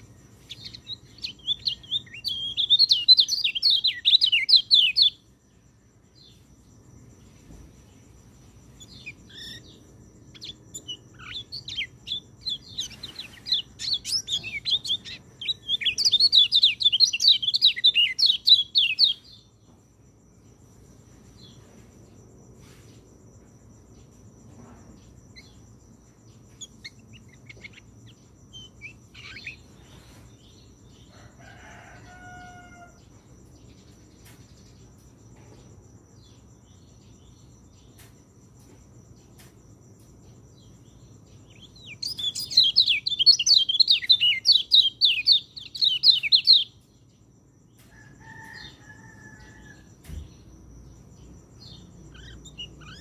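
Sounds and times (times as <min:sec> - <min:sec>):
bird twittering chirps: 0:00.0 - 0:05.2, 0:08.6 - 0:19.7, 0:25.0 - 0:31.1, 0:40.5 - 0:46.9, 0:50.1 - 0:53.0.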